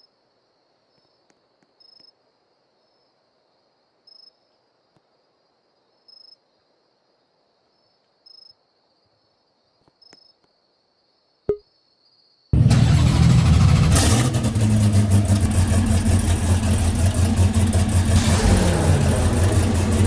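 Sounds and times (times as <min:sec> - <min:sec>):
car engine starting: 0:12.6 - 0:20.0.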